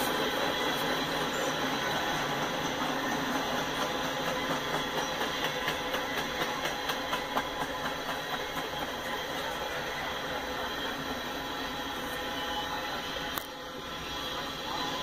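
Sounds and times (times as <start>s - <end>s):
wheels clacking over rail joints: 0.0s - 9.7s
steel wheels rumbling on rail: 0.0s - 15.0s.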